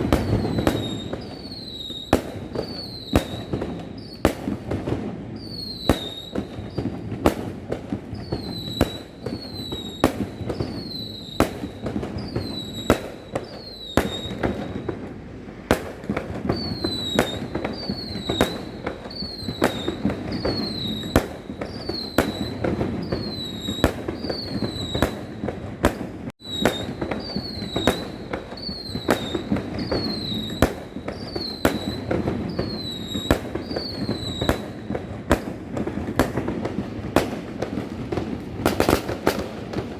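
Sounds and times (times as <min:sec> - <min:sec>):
firework bangs: 0:00.0 - 0:39.9
falling whistle: 0:00.2 - 0:04.2, 0:05.4 - 0:07.0, 0:08.2 - 0:14.9, 0:16.5 - 0:25.2, 0:26.4 - 0:34.8.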